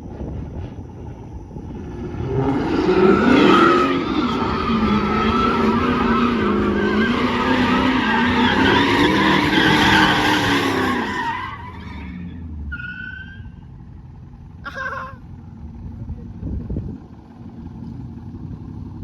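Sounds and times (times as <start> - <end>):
engine revving high: 1.7 - 12.6
car tires squealing: 1.8 - 13.8.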